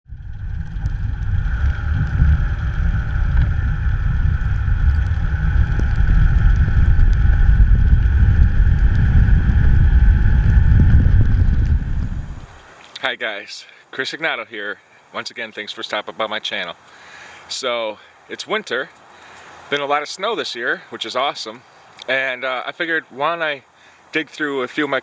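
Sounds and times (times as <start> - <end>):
vehicle driving rumble: 0.0 - 12.6
faint steady whine: 0.1 - 25.0.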